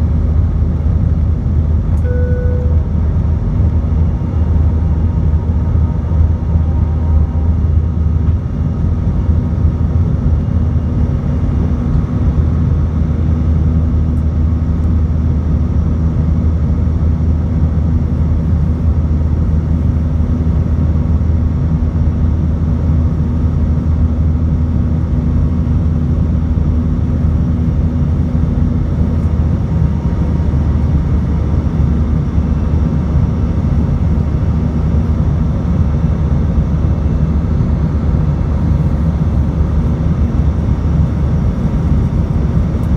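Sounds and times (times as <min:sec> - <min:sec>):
jet engine and airflow rumble: 0:00.0 - 0:42.9.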